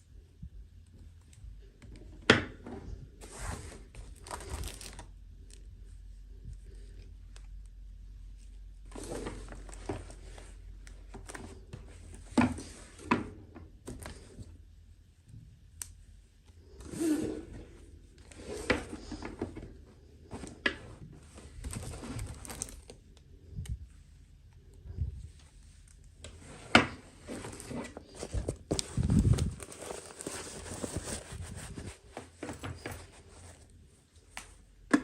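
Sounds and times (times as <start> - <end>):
plastic and cardboard rustling: 2.6 - 5.7, 8.8 - 14.5, 16.8 - 23.1, 24.9 - 34.4.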